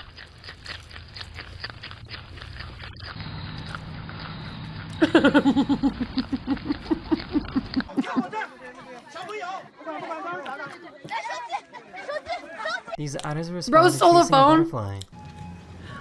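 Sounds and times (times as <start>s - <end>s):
crunchy chewing: 0.0s - 9.4s
steady hum: 2.5s - 7.9s.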